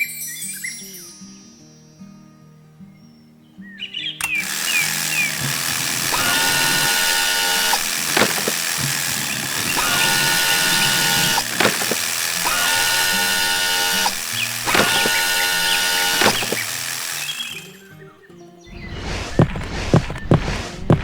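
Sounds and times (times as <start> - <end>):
sharp click: 4.2 - 17.8
mechanical whirring and ratcheting: 4.2 - 17.9, 18.8 - 21.0.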